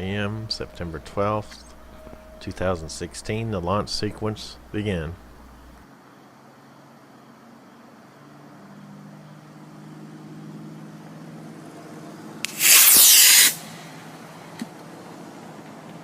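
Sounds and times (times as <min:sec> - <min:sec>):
faint low hum: 0:00.0 - 0:05.8
rocket motor igniting pop: 0:12.4 - 0:13.8
rocket lifting off hiss: 0:12.4 - 0:14.2.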